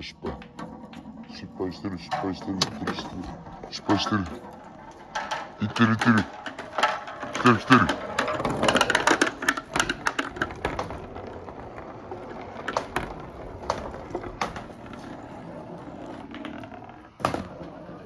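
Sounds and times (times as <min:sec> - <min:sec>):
marbles clattering through pipes: 0:00.0 - 0:15.1.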